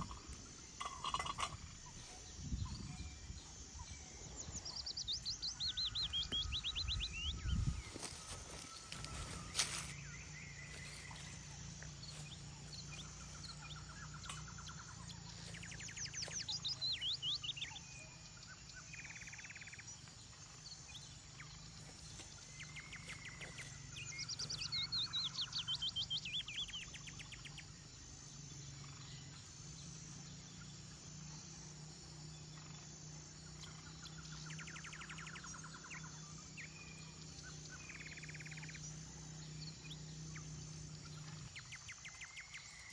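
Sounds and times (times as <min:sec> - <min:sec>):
songbird trilling: 0:00.0 - 0:20.1, 0:20.8 - 0:27.6
bird chirps: 0:00.0 - 0:29.4, 0:32.5 - 0:42.9.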